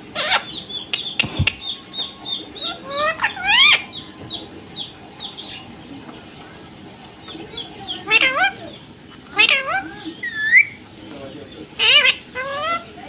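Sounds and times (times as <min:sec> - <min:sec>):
parrot chirping: 0:00.0 - 0:11.0, 0:11.6 - 0:13.0
parrot rising calls: 0:00.1 - 0:06.0
brief thump: 0:01.2 - 0:01.6.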